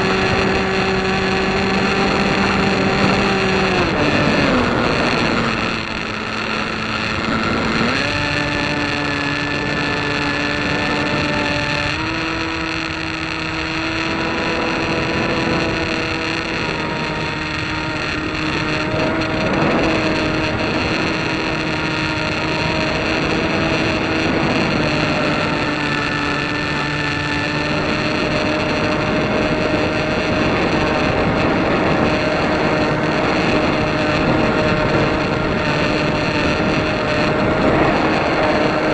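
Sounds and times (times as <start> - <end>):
engine running: 0.0 - 38.9
wind noise on microphone: 0.0 - 38.9.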